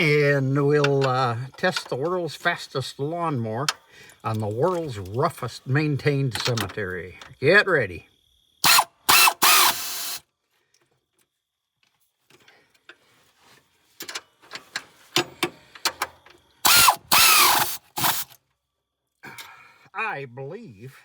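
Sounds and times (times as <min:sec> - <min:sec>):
air tool whirring: 0:08.6 - 0:10.2, 0:16.6 - 0:18.4.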